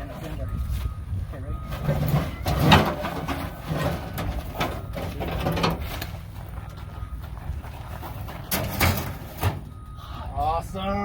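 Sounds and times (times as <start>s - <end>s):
sheet metal clunks and knocks: 1.8s - 5.9s, 8.5s - 9.8s.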